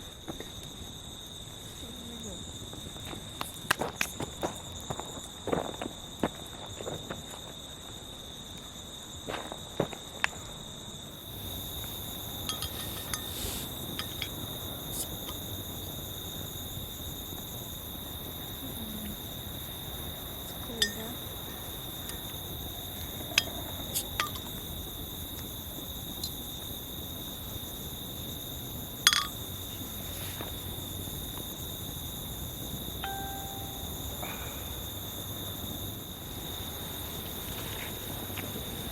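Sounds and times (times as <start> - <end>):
insects calling high-pitched: 11.2 - 36.6.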